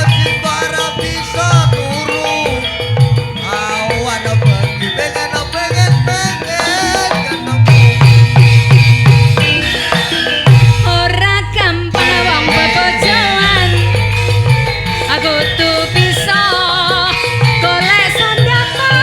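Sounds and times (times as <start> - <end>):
drum strikes: 0.0 - 19.0
wavering melody line: 0.0 - 19.0
heavy low beats: 7.4 - 16.7.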